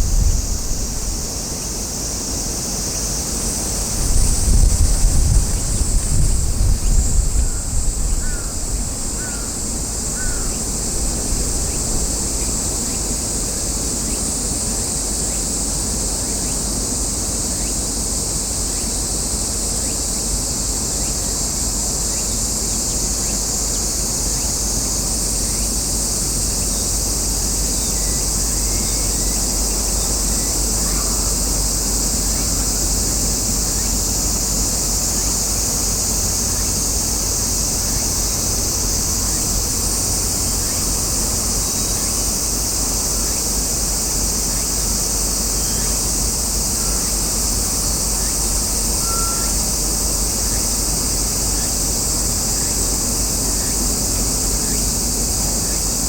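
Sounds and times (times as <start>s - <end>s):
wind rumble on microphone: 0.0s - 1.8s, 3.6s - 13.7s
crow cawing: 10.2s - 10.5s.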